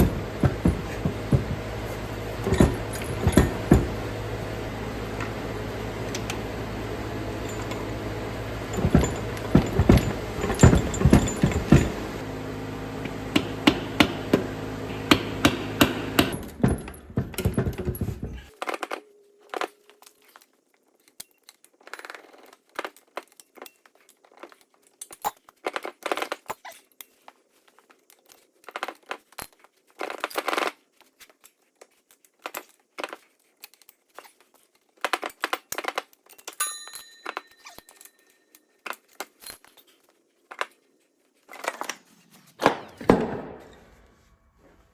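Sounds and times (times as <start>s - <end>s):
metal tools clinking and scraping: 0.0s - 12.2s, 32.2s - 40.8s
steady tonal hum: 0.0s - 18.5s.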